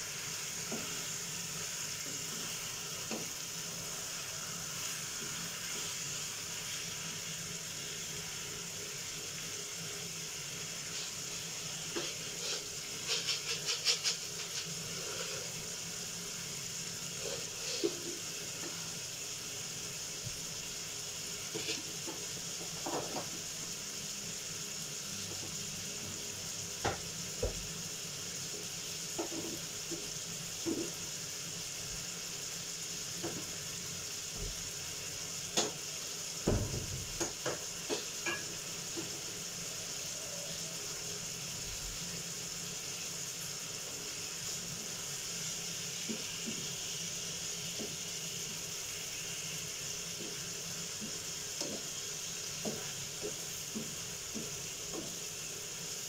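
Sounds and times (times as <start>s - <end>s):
chicken frying with pops: 0.0s - 56.0s
wooden spatula stirring in a pan: 10.8s - 15.8s, 17.1s - 19.0s, 21.2s - 23.6s, 28.4s - 31.3s, 49.8s - 56.0s.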